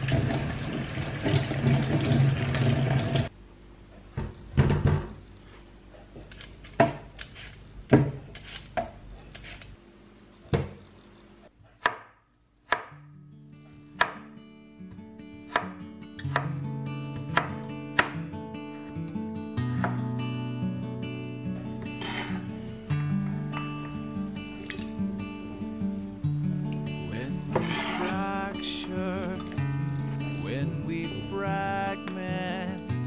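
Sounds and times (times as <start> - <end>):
acoustic guitar music: 12.9 - 33.0.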